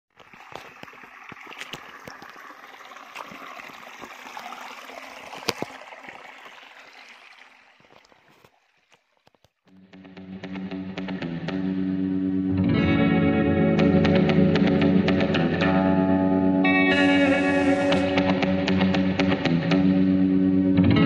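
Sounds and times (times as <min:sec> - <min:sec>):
small splashes and clicks: 0:00.1 - 0:09.8
stream running and trickling: 0:00.1 - 0:09.8, 0:16.6 - 0:19.5
guitar music with effects: 0:09.7 - 0:21.0.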